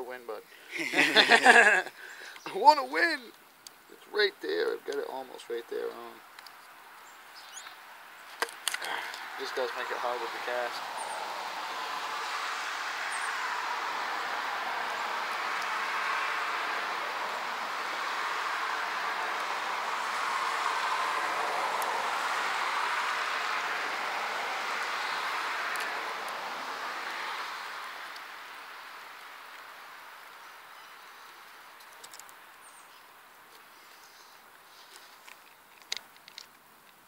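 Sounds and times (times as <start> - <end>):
passing vehicle rushing: 8.8 - 31.0.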